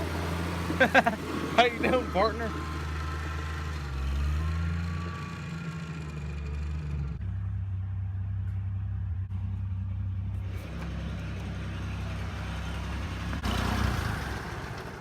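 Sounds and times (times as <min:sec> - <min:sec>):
small engine running: 0:00.0 - 0:07.8.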